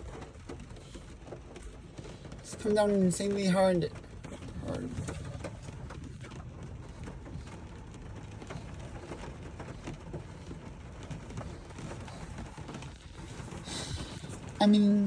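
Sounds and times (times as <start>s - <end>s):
heavy rain pouring: 0.0s - 15.0s
raindrops ticking on a surface: 0.0s - 15.0s.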